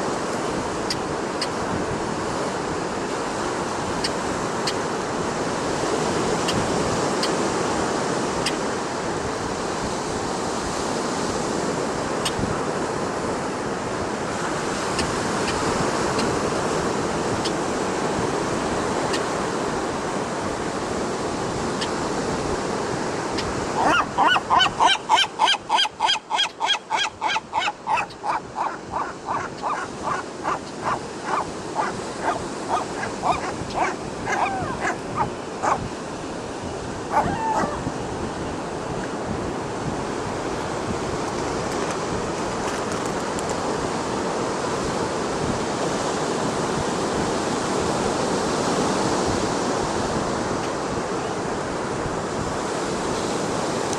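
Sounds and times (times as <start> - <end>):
ocean surf: 0.0 - 53.9
wind over microphone: 0.0 - 53.9
seagull calling: 23.4 - 35.8, 37.1 - 37.9.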